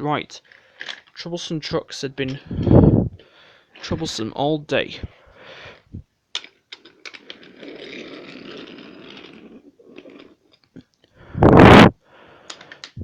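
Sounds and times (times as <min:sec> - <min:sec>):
toy train rolling on wooden track: 0:06.4 - 0:10.7.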